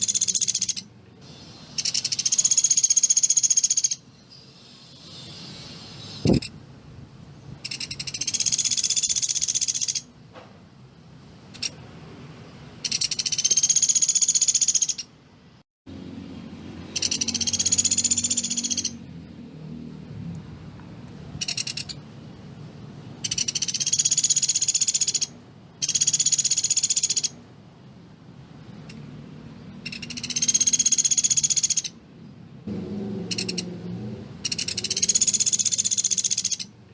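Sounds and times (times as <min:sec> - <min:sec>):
woodpecker rattling trill: 0:00.0 - 0:00.9, 0:01.8 - 0:04.0, 0:07.6 - 0:10.1, 0:11.5 - 0:11.8, 0:12.8 - 0:15.1, 0:16.9 - 0:19.0, 0:21.4 - 0:22.0, 0:23.2 - 0:27.4, 0:29.8 - 0:32.0, 0:33.3 - 0:33.7, 0:34.4 - 0:36.7.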